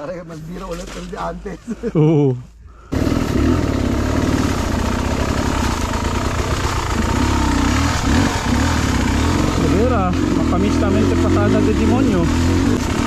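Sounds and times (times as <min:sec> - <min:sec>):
two-stroke motorcycle engine running: 0:02.9 - 0:13.0.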